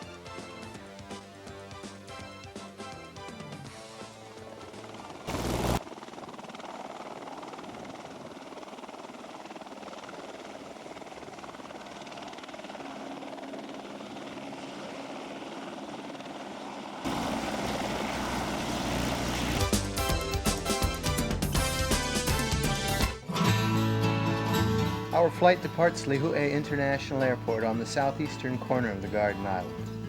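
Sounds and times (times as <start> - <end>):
helicopter engine and rotor drone: 0.0 - 23.0.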